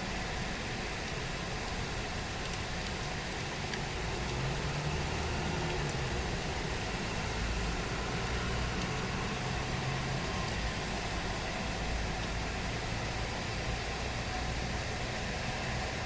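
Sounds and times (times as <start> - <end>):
heavy rain falling: 0.0 - 16.0
faint drip ticks: 1.0 - 4.4, 5.0 - 6.5, 8.2 - 9.1, 12.1 - 12.4.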